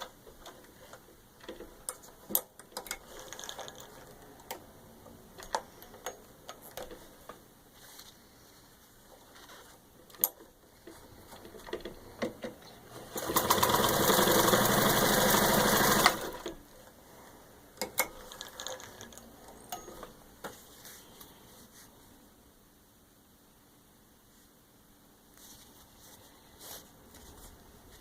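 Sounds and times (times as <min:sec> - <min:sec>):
sewing machine running: 0:13.0 - 0:16.6.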